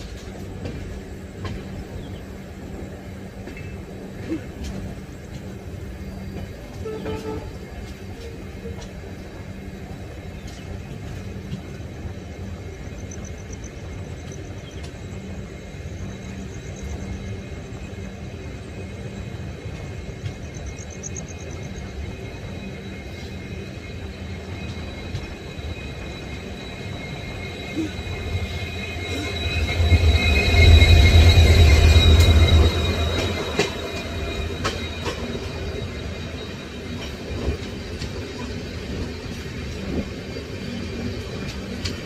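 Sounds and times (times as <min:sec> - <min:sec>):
train rumbling on rails: 0:00.0 - 0:42.0
high-pitched wheel squeal: 0:22.4 - 0:37.6.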